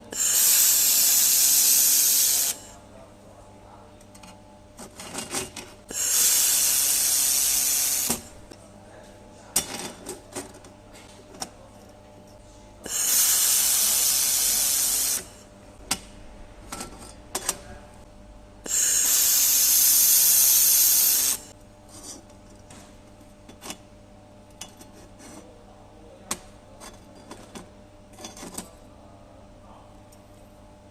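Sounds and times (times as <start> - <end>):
laser welder hissing: 0.0 - 2.7, 5.9 - 8.3, 12.8 - 15.4, 18.7 - 21.5.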